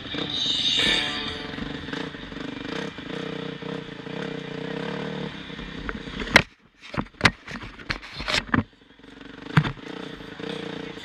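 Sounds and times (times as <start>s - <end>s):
motocross bike engine running: 0.0s - 11.0s
sharp knocks and clacks: 9.5s - 9.8s.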